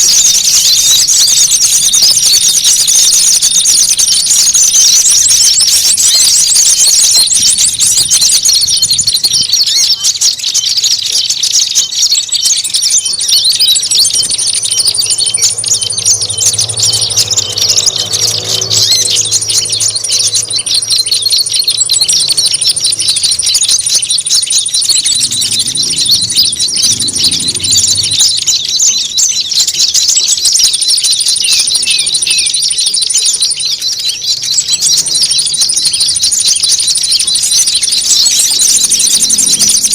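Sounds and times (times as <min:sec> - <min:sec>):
songbirds chirping: 0:00.0 - 0:39.9
thin high bird trill: 0:00.0 - 0:39.9.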